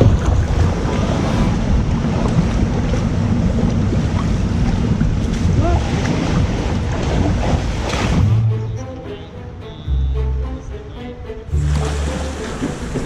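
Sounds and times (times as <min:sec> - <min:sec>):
small waves washing: 0:00.0 - 0:08.6, 0:11.6 - 0:13.0
wind rumble on microphone: 0:00.0 - 0:08.8.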